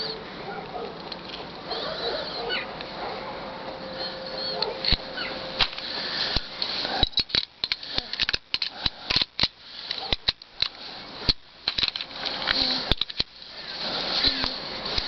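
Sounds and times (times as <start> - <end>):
steady background hiss: 0.0 - 15.0
sharp clicks: 4.6 - 13.4.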